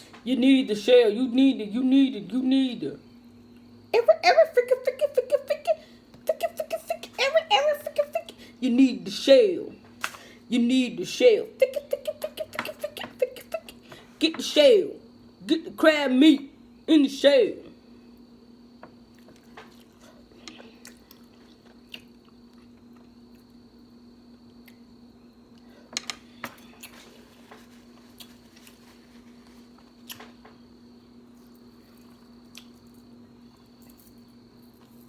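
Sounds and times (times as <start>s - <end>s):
steady hum: 0.0s - 35.0s
chewing and squishing: 19.1s - 23.5s, 31.3s - 32.9s.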